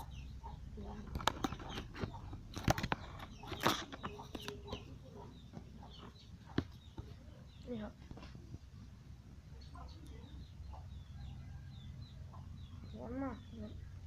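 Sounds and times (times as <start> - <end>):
chickens clucking: 0.0 - 14.0
sharp clicks and knocks: 0.9 - 4.9.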